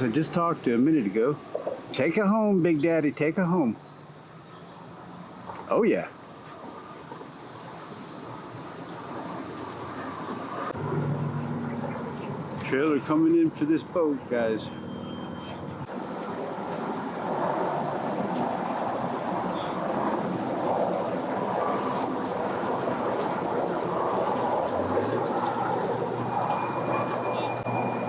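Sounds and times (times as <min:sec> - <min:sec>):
engines droning: 0:15.8 - 0:28.0.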